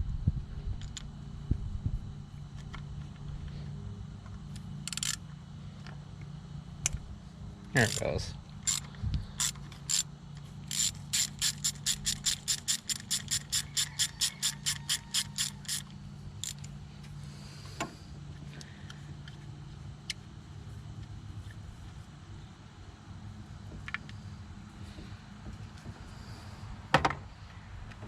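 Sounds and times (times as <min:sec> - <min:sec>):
ratchet wrench clicking: 0:04.8 - 0:05.2, 0:07.8 - 0:16.8.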